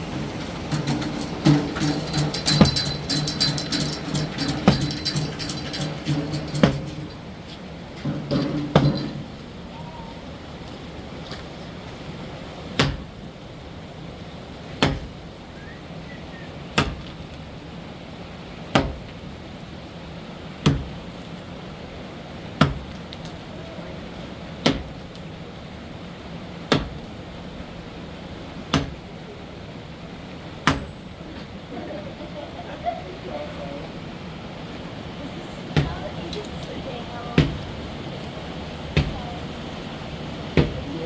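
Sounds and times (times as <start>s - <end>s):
hammer blows: 0.0s - 10.4s, 30.6s - 31.6s, 37.2s - 41.0s.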